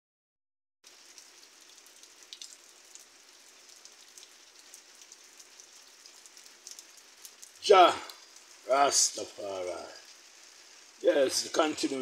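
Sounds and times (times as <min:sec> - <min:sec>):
rain on a roof: 0:00.8 - 0:12.0.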